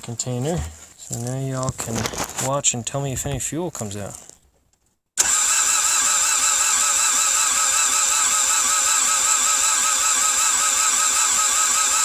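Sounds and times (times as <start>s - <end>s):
engine cranking with starter whine: 5.2s - 12.0s.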